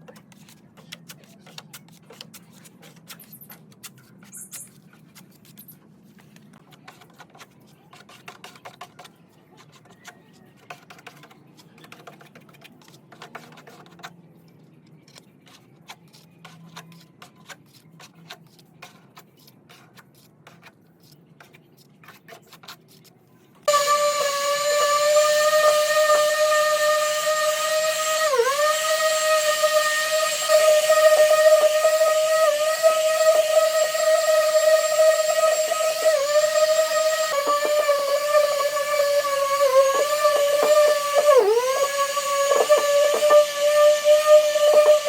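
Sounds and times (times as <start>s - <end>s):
power tool whining: 23.7s - 45.0s.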